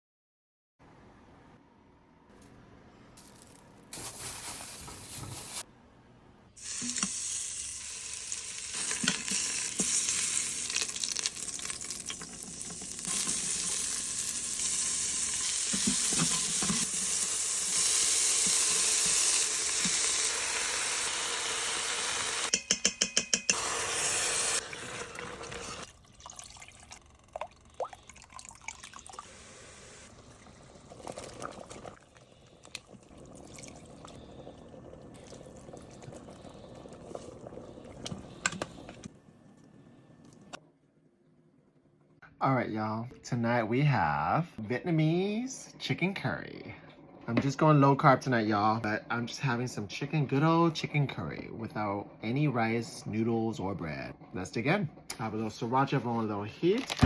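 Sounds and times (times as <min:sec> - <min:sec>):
food sizzling in a pan: 0:04.0 - 0:05.6, 0:06.6 - 0:22.5, 0:23.5 - 0:25.9.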